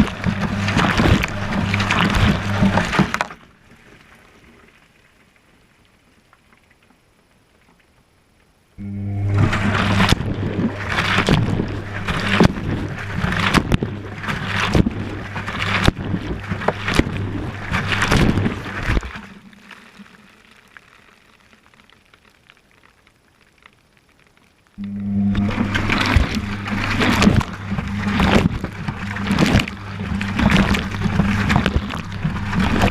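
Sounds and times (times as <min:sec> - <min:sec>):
washing machine motor hum: 0:00.0 - 0:03.2, 0:08.8 - 0:19.3, 0:24.8 - 0:32.9
water sloshing and laundry tumbling: 0:00.0 - 0:05.4, 0:08.8 - 0:20.6, 0:24.8 - 0:32.9.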